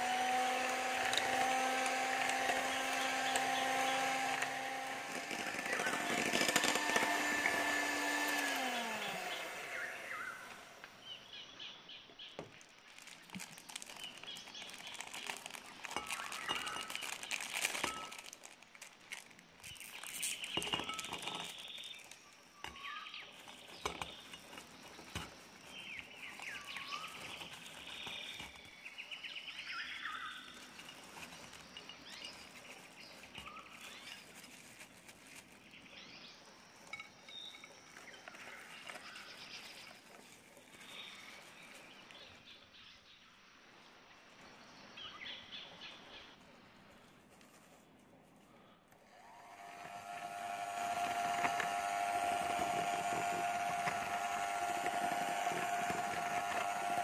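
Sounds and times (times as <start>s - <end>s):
small birds chirping and trilling: 8.4s - 18.0s, 19.6s - 43.6s.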